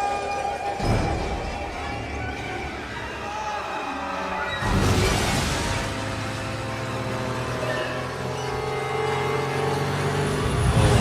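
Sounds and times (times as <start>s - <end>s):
film score music: 0.0s - 11.0s
small plane engine drone: 5.9s - 11.0s.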